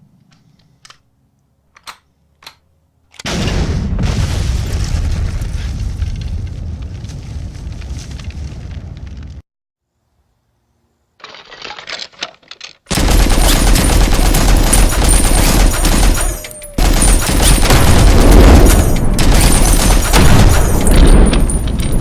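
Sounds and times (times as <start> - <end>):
machine gun firing: 12.9 - 22.0.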